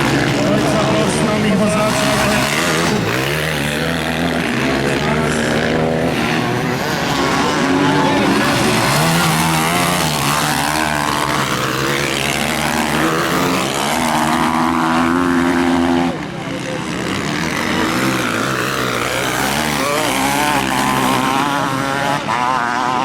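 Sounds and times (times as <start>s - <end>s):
motocross bikes revving: 0.0s - 23.0s.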